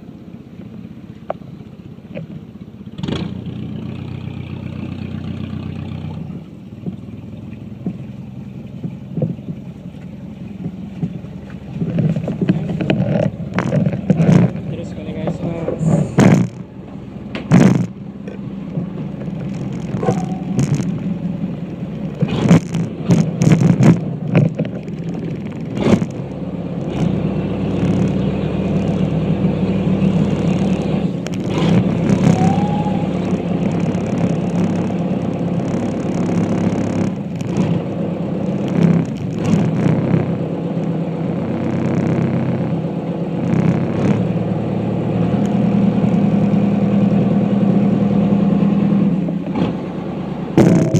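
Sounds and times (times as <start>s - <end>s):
ferry engine running: 0.0s - 50.9s
sharp knocks and clatters: 8.7s - 16.6s, 17.3s - 21.1s, 22.1s - 27.2s.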